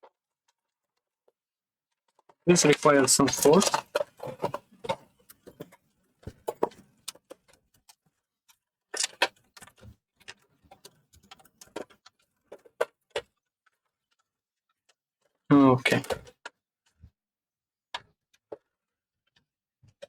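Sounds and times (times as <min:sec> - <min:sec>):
plastic and metal parts clicking: 0:02.1 - 0:14.3.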